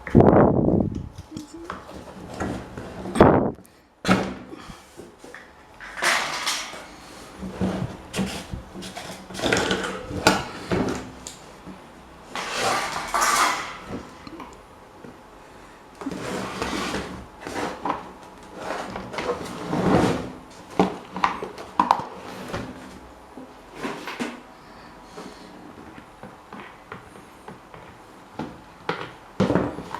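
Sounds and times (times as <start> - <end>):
metal parts scraping and rattling: 5.8 - 10.6, 12.3 - 14.2.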